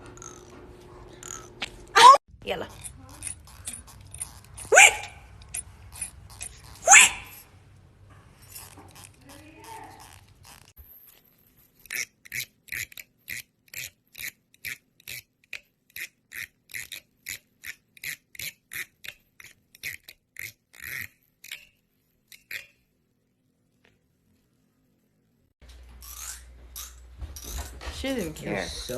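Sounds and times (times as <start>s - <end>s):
fingernail scraping comb teeth: 0.0s - 0.5s, 1.1s - 1.7s, 2.6s - 7.4s, 8.4s - 10.8s, 11.7s - 22.8s, 26.0s - 27.7s.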